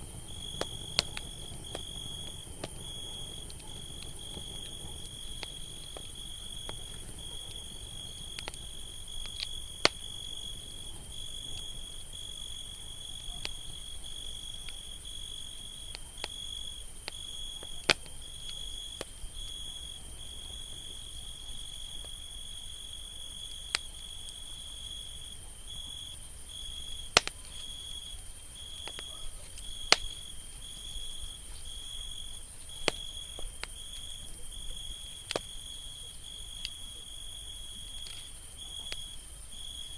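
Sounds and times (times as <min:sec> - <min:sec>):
high insect trill: 0:00.0 - 0:17.6
campfire crackling: 0:00.0 - 0:39.9.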